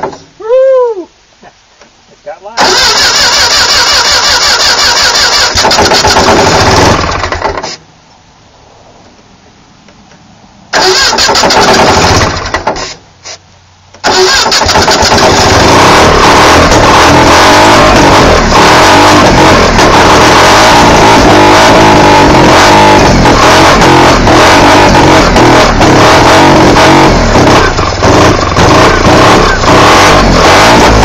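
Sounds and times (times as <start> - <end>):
small car engine running roughly: 2.6 - 7.8, 10.8 - 12.9, 14.0 - 31.0.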